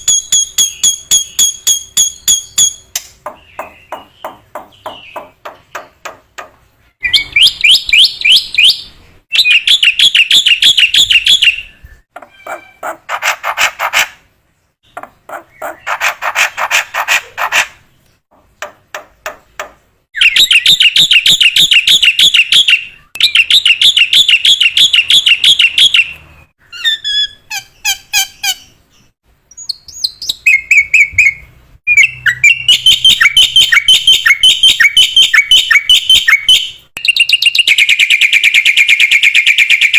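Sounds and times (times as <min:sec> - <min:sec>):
starling chattering song: 0:12.2 - 0:14.0.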